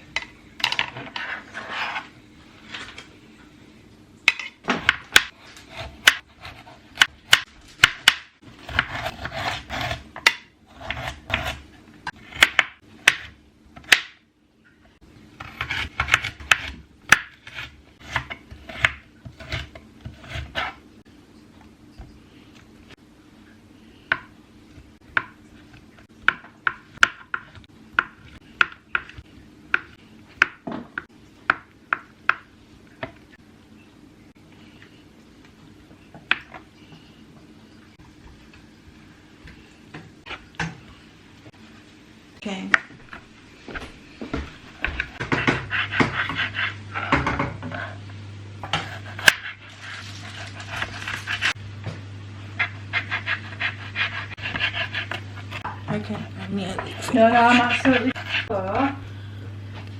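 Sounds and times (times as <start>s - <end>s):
faint steady hum: 0.0s - 59.9s
knife chopping on cutting board: 4.4s - 11.6s, 15.4s - 20.8s, 44.3s - 47.6s, 52.6s - 55.7s
steady low hum: 32.5s - 59.9s.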